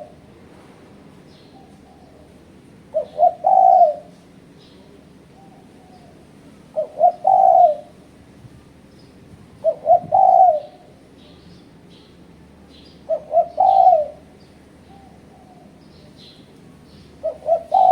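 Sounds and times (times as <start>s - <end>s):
dove cooing: 0.0s - 0.2s, 2.9s - 4.2s, 6.7s - 8.0s, 9.6s - 10.9s, 13.1s - 15.6s, 17.2s - 17.9s.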